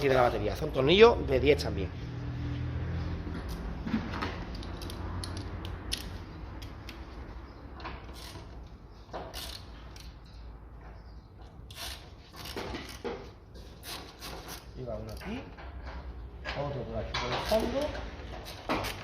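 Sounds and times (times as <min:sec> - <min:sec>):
ratchet wrench clicking: 0:04.5 - 0:07.0, 0:09.3 - 0:10.2, 0:11.7 - 0:13.1.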